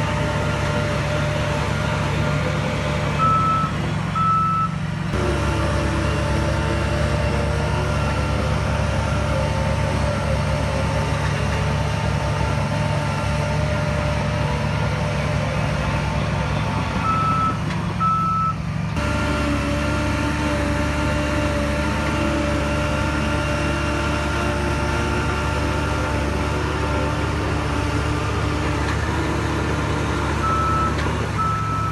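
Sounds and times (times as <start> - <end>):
heavy diesel machinery running: 0.0 - 31.9
reversing alarm beeping: 3.2 - 4.8, 17.0 - 18.6, 30.4 - 31.9.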